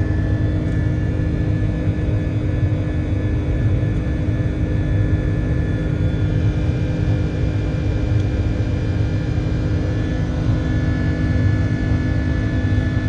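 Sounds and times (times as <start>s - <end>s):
jet engine drone in cabin: 0.0s - 13.0s.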